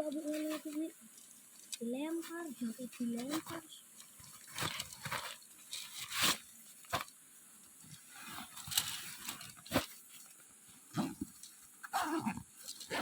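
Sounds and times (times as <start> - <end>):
soft rustling: 0.0 - 13.0.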